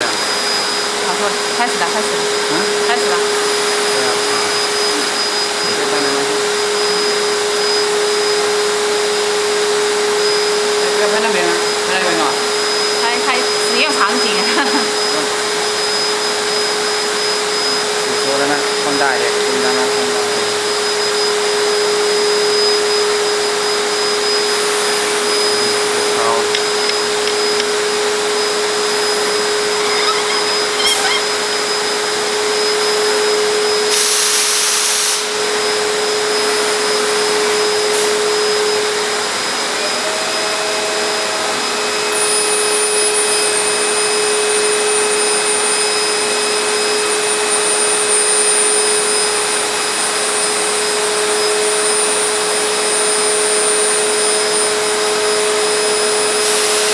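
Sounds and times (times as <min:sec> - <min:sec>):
router machine whining: 0:00.0 - 0:56.9
brief loud hiss: 0:33.9 - 0:35.4, 0:56.4 - 0:56.9.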